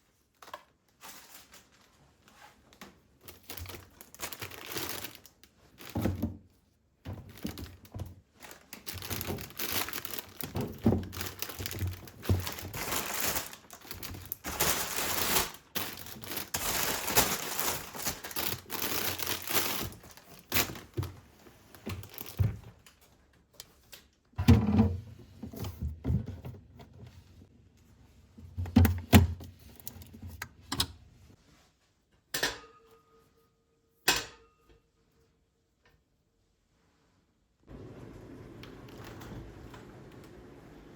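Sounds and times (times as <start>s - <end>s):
packaging crinkling: 3.3s - 6.1s, 7.3s - 21.2s, 21.9s - 22.9s.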